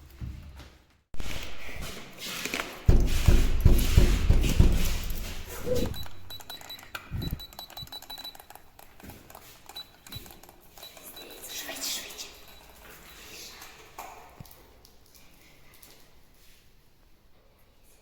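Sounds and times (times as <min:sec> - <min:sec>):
heavy thumps: 0:02.9 - 0:06.3
thin high beeping: 0:05.6 - 0:08.8, 0:09.4 - 0:13.9.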